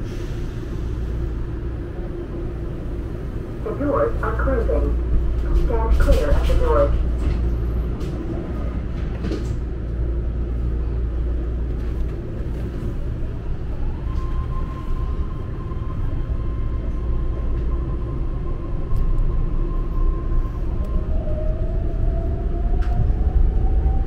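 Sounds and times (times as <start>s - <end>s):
train rumble inside carriage: 0.0s - 24.0s
train running gear whine: 0.0s - 24.0s.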